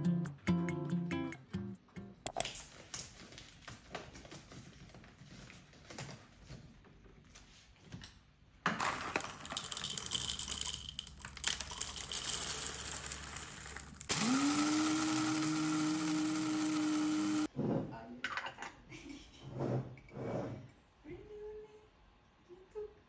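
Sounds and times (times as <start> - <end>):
small appliance motor humming: 14.1 - 17.5.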